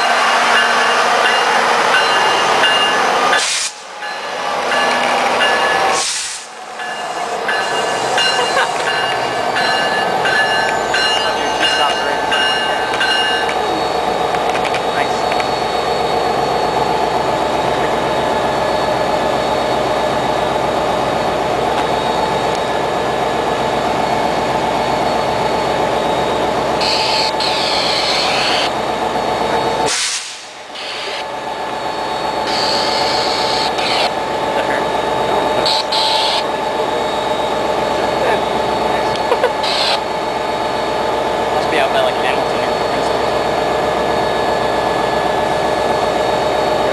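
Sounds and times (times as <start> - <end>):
train mechanical drone: 0.0 - 46.9.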